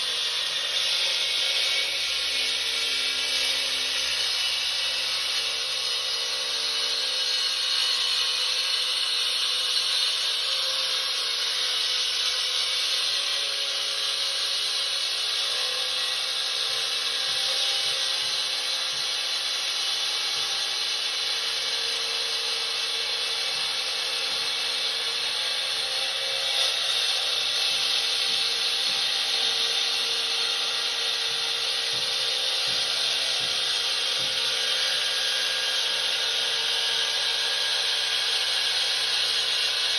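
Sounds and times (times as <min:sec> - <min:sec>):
concrete saw running: 0:00.0 - 0:39.9.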